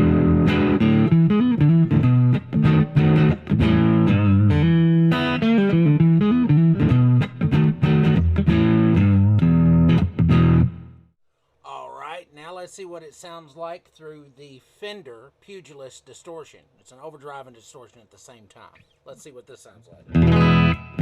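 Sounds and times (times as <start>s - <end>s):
distorted electric guitar: 0.0s - 11.0s, 20.1s - 21.0s.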